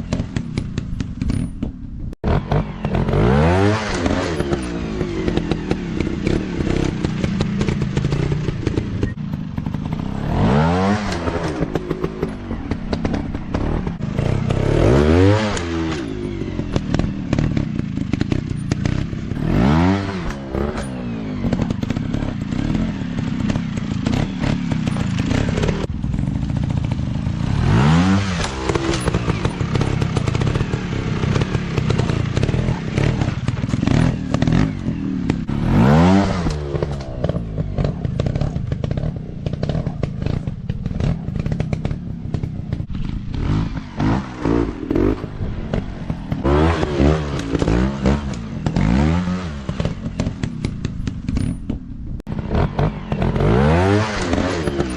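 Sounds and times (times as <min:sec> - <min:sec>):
dirt bike engines revving: 0:02.2 - 0:54.9.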